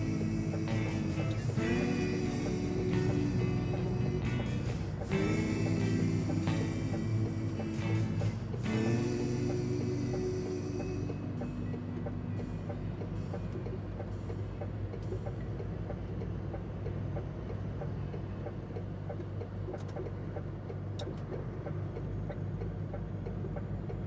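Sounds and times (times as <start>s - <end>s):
music: 0.0s - 14.2s
diesel truck engine droning: 0.0s - 24.0s
faint clicks: 5.8s - 24.0s.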